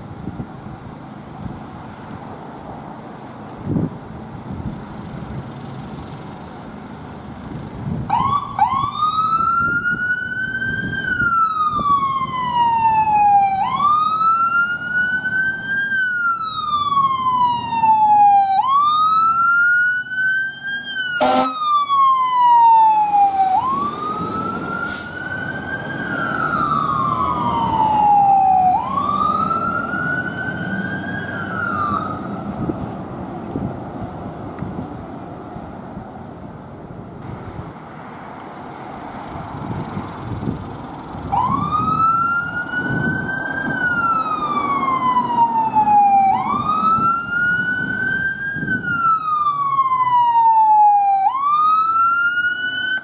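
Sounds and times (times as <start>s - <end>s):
truck engine rumbling: 0.0s - 50.0s
fire truck siren wailing: 7.9s - 32.8s, 41.2s - 53.0s
siren blip: 21.2s - 23.9s.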